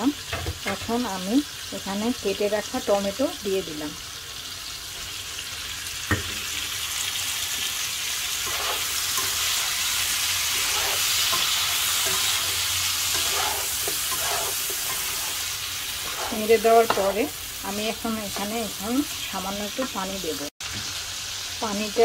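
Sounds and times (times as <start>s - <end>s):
vegetables sizzling in hot oil: 0.0s - 22.0s
spatula stirring in pan: 8.2s - 19.2s.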